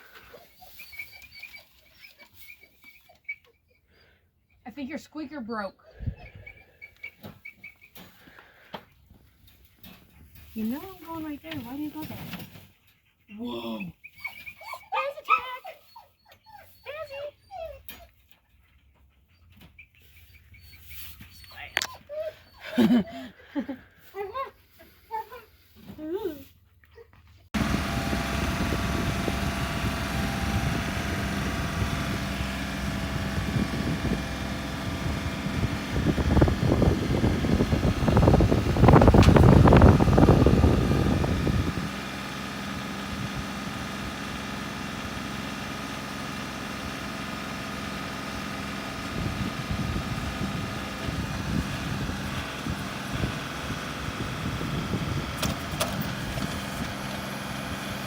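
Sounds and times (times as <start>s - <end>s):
engine running: 27.3s - 58.0s.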